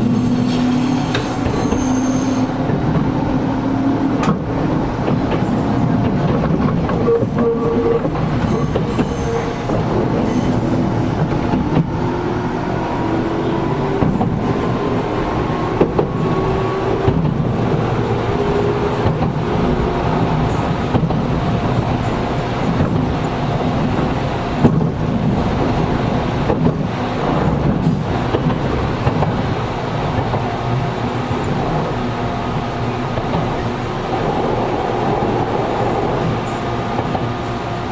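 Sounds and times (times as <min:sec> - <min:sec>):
rail-joint clicks: 0:00.0 - 0:37.9
wheel-on-rail rumble: 0:00.0 - 0:37.9.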